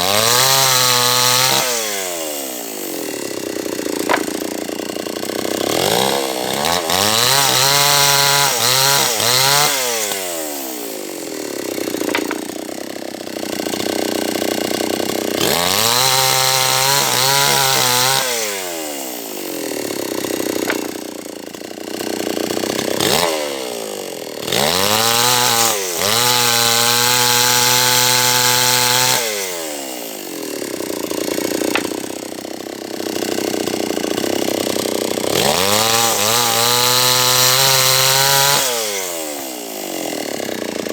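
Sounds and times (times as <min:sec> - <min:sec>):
chainsaw cutting log: 0:00.0 - 0:40.9.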